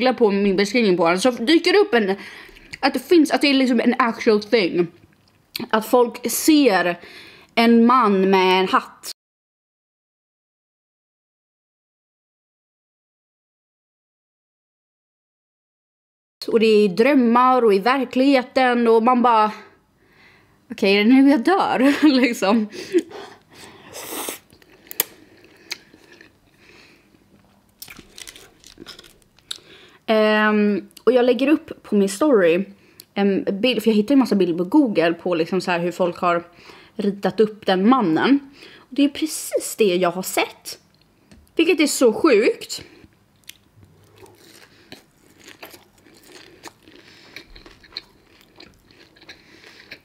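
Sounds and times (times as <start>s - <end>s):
chewing noodles: 24.0s - 26.6s, 27.4s - 29.7s, 43.4s - 50.0s.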